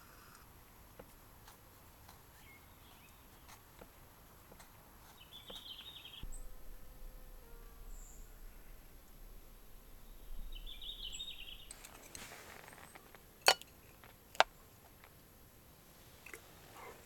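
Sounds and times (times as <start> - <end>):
bird chirping: 2.3 - 3.6, 5.0 - 15.1
faint high chirps: 5.3 - 13.2
low rumble: 6.2 - 13.4.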